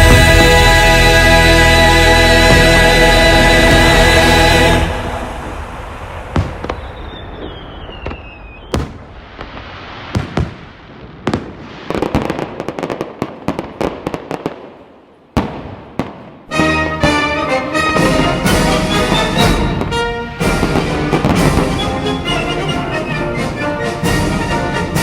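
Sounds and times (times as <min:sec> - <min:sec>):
crackling firework bursts: 0:05.0 - 0:16.5
falling firework whistle: 0:05.2 - 0:10.7, 0:17.1 - 0:25.0
firework bangs with echoes: 0:05.4 - 0:22.4.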